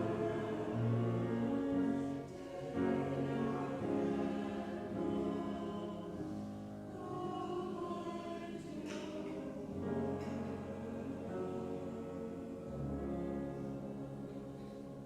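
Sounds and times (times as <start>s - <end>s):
church choir singing: 0.0s - 15.0s.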